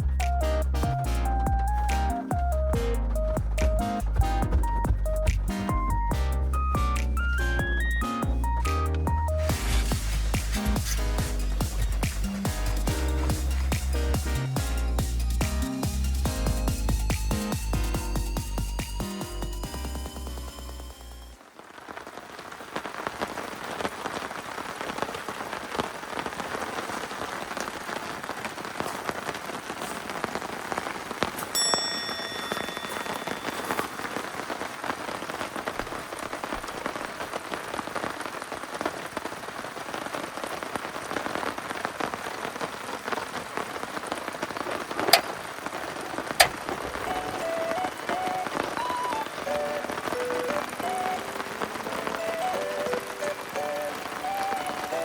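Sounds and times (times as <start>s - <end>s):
heavy rain falling: 0.0s - 55.0s
short ringing tone: 31.6s - 33.9s.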